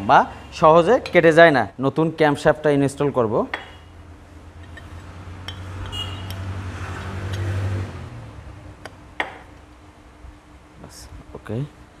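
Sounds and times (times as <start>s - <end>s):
passing vehicle engine hum: 4.5s - 9.1s.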